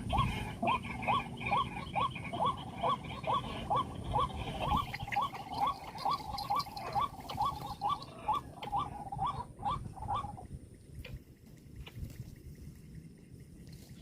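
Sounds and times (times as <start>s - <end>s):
waterhen calling: 0.0s - 10.5s.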